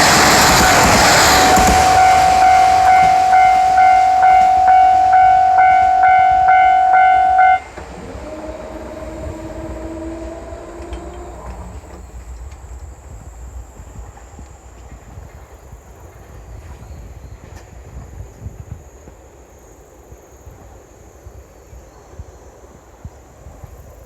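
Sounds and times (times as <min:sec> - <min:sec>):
train hum: 0:00.0 - 0:24.0
level crossing bell ringing: 0:01.3 - 0:07.7.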